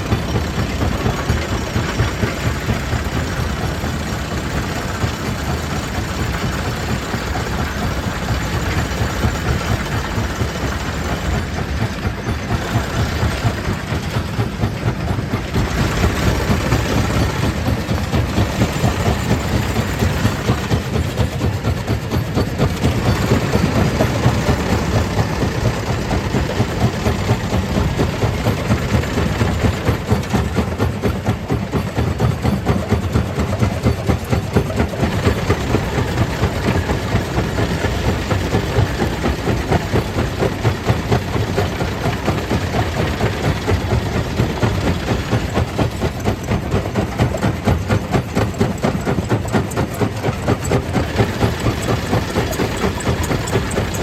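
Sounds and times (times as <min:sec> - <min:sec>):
stone crusher machine pulsing: 0:00.0 - 0:54.0.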